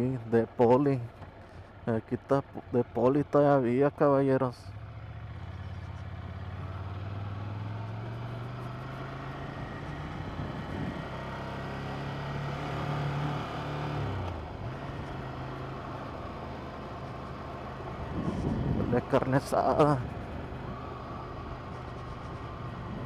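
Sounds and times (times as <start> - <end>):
motorcycle engine running: 4.6 - 23.0.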